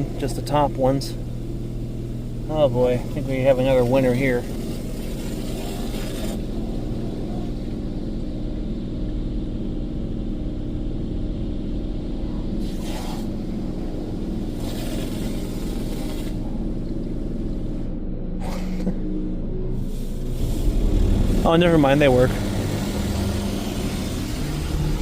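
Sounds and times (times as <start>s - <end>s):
car wash pump hum: 0.0s - 25.0s
water spray hissing on car: 2.8s - 7.4s, 12.6s - 13.4s, 14.0s - 16.5s, 19.8s - 25.0s.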